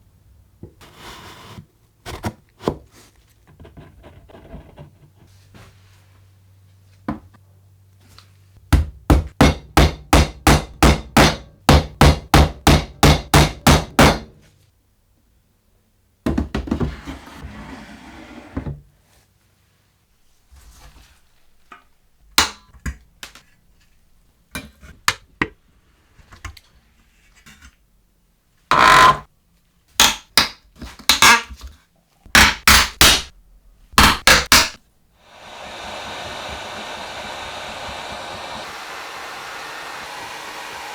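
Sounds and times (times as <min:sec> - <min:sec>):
hammer blows: 0:34.1 - 0:40.9.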